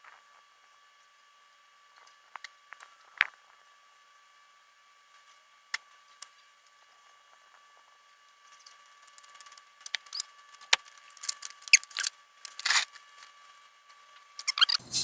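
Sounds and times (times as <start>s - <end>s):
crinkly rustles: 6.3s - 14.5s.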